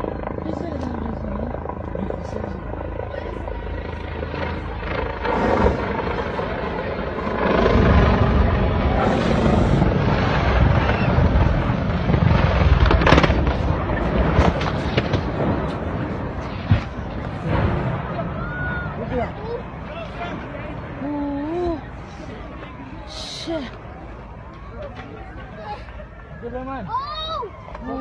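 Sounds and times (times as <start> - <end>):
helicopter rotor and engine: 0.0 - 28.0.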